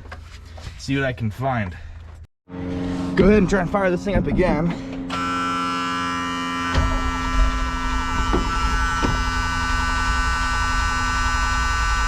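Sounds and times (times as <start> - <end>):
engine starting and rumbling: 1.8 - 12.0
steady electric buzz: 2.5 - 12.0.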